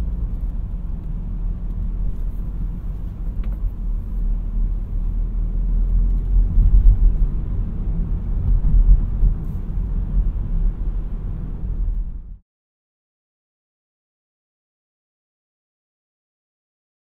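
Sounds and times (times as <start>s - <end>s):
car engine rumble: 0.0s - 12.4s
road noise: 0.0s - 12.4s.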